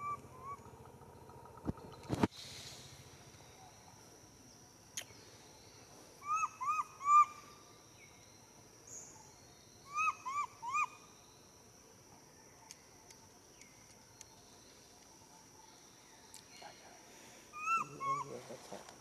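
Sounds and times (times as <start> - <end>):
bird calling: 0.0 - 2.1, 6.2 - 7.7, 8.9 - 11.2, 17.5 - 18.8.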